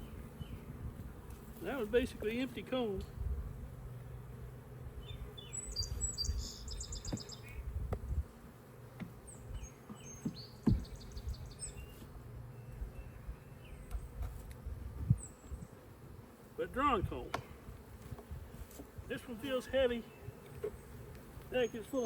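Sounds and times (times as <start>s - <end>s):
honeybees buzzing: 0.0s - 22.0s
songbird trilling: 5.0s - 7.6s
sharp knocks: 9.9s - 11.0s.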